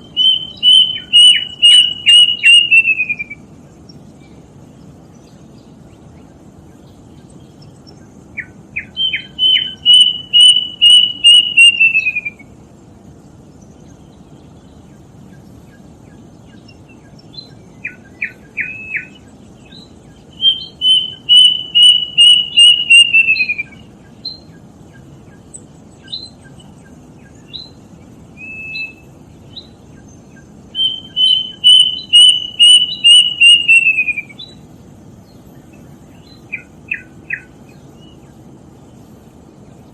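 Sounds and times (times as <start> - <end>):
cuckoo singing: 0.0 - 3.5, 8.4 - 12.6, 16.9 - 34.6, 36.2 - 38.2
faint low hum: 0.0 - 39.9.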